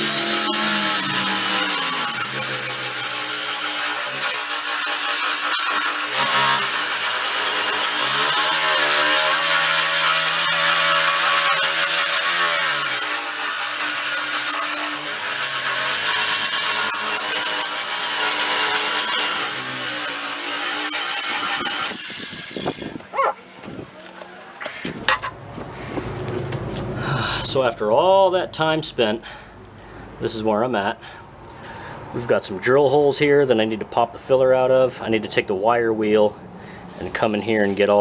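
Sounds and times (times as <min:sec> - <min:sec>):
power sander grinding metal: 0:00.0 - 0:25.4.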